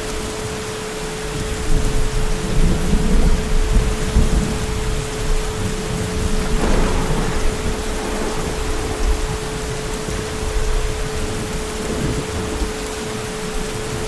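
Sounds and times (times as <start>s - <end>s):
heavy rain falling: 0.0s - 14.0s
deep thunder rumble: 1.6s - 14.0s.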